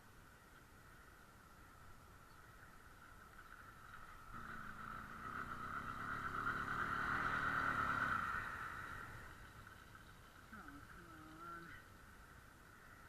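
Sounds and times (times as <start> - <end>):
motorcycle engine running badly: 3.6 - 10.8.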